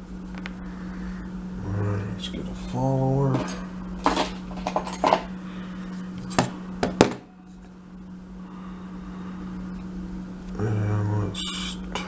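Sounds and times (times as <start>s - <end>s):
metal tools clinking and clicking: 3.4s - 5.3s.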